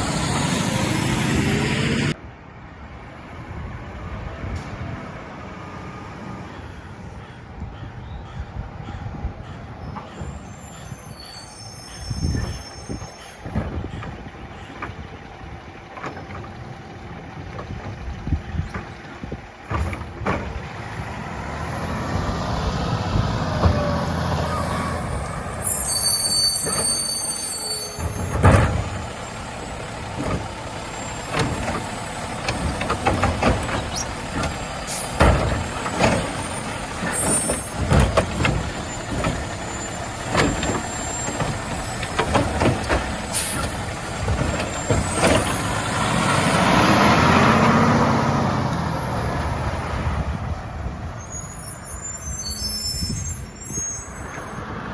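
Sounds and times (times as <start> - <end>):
diesel engine revving: 0.0 - 2.2, 11.8 - 54.9
carts knocking and banging: 11.9 - 48.4
air brake hisses: 43.3 - 43.7.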